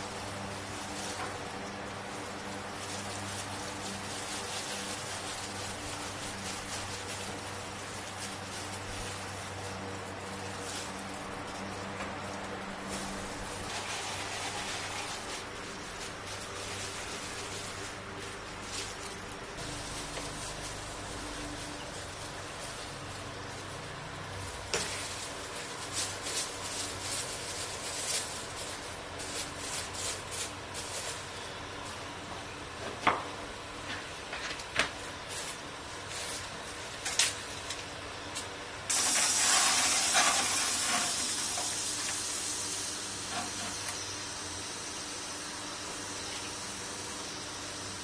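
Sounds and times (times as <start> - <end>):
food sizzling in a pan: 38.9 - 48.0.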